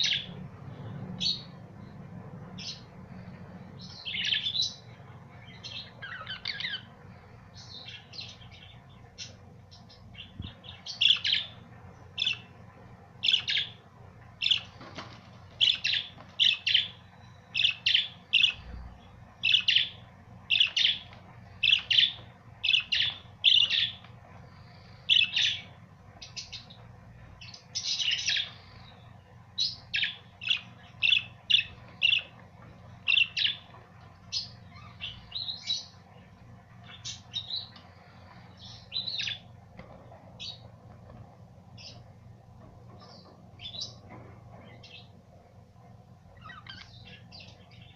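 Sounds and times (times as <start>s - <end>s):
budgerigars chirping: 5.4s - 6.9s, 7.6s - 11.6s, 13.2s - 13.8s, 15.6s - 17.0s, 17.6s - 18.8s, 19.4s - 24.0s, 24.6s - 26.8s, 29.6s - 32.3s, 33.0s - 36.0s, 46.4s - 47.9s.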